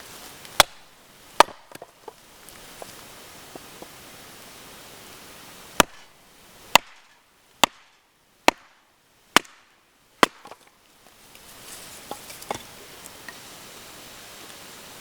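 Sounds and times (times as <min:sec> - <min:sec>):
chopping strikes on wood: 0:00.5 - 0:02.2, 0:05.8 - 0:06.1, 0:06.7 - 0:08.8, 0:09.4 - 0:10.7.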